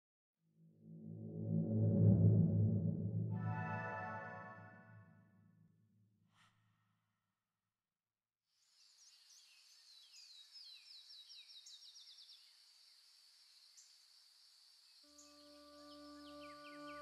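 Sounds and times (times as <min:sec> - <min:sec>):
light steady hiss: 0:08.6 - 0:16.2.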